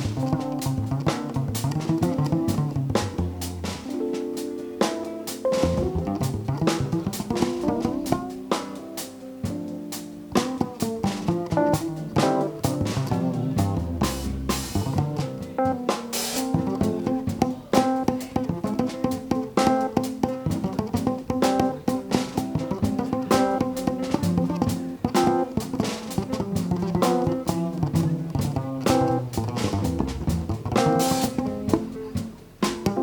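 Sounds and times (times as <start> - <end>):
bass line: 0.0 - 4.0, 5.5 - 8.4, 10.4 - 15.9, 20.4 - 33.0
drum kit: 0.0 - 33.0
plucked guitar: 0.0 - 33.0.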